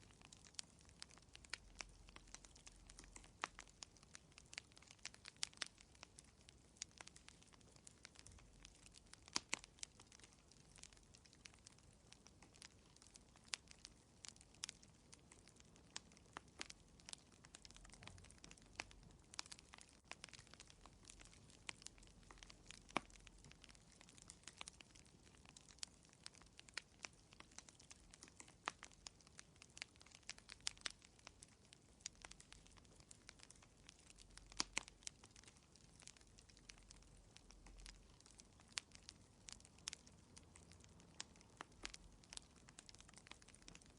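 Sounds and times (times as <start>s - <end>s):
wood fire crackling: 0.0s - 43.9s.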